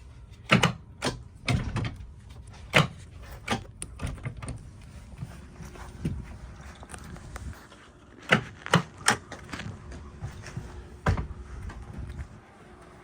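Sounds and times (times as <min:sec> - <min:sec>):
boat seat clunks and knocks: 0:10.2 - 0:12.1.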